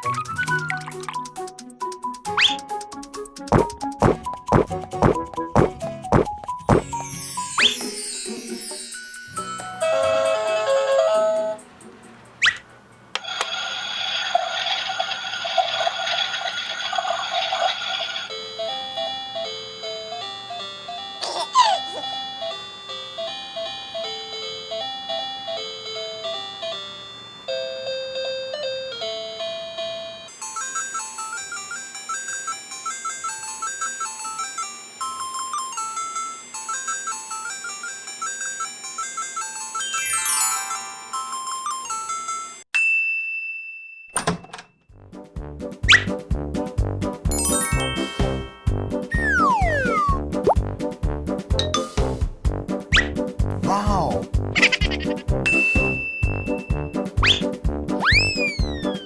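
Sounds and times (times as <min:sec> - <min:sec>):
swooping sound effect: 0:03.5 - 0:07.0, 0:47.3 - 0:50.6, 0:57.2 - 0:59.0
bouncy bell-like melody: 0:06.6 - 0:11.6, 0:18.3 - 0:44.1, 0:47.3 - 0:50.5, 0:51.6 - 0:52.2, 0:55.4 - 0:59.0
bell-like melody: 0:06.8 - 0:11.6, 0:34.6 - 0:44.0, 0:47.3 - 0:50.2, 0:55.5 - 0:57.1
cartoon whoosh: 0:45.9 - 0:46.1, 0:49.1 - 0:50.6, 0:57.2 - 0:59.0.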